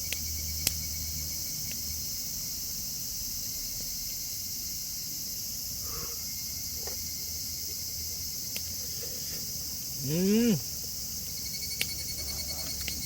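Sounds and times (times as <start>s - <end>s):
insects buzzing: 0.0s - 13.0s
person humming: 10.0s - 10.6s.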